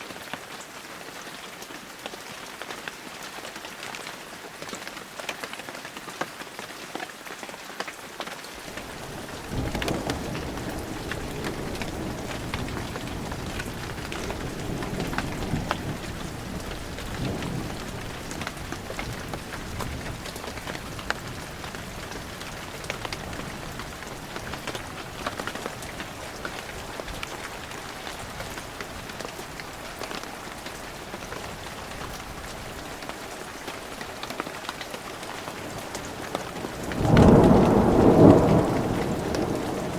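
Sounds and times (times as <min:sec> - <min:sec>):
heavy rain falling: 0:00.0 - 0:39.9
thunder rumble: 0:08.6 - 0:34.1, 0:35.2 - 0:39.9.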